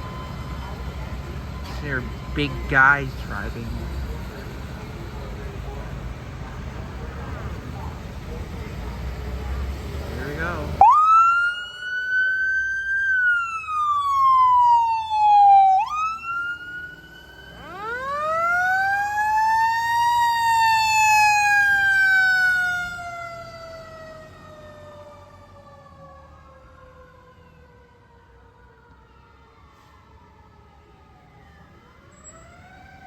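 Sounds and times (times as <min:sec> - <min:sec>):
wailing siren: 0:00.0 - 0:03.7, 0:10.3 - 0:33.0.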